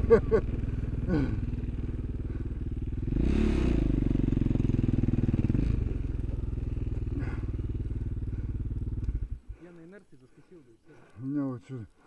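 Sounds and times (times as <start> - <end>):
motorcycle engine running: 0.0 - 9.6.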